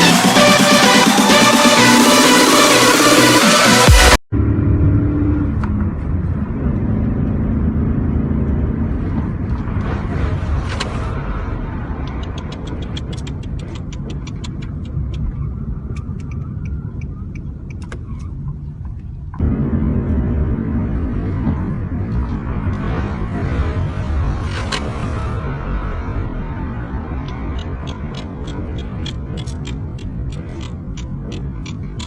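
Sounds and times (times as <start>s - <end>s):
vehicle engine and road noise: 0.0s - 32.0s
quick sharp ticks: 12.0s - 15.2s, 27.2s - 32.0s.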